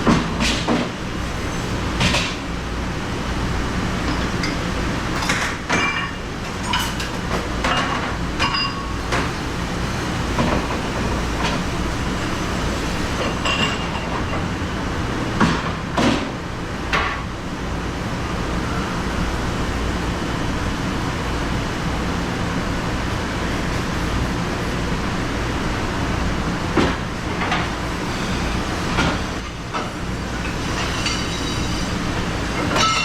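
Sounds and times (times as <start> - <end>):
dishes and utensils clattering: 32.6 - 33.0.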